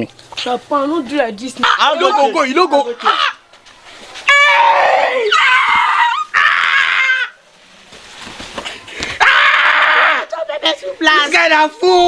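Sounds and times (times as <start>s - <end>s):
person screaming high-pitched: 4.3s - 7.4s.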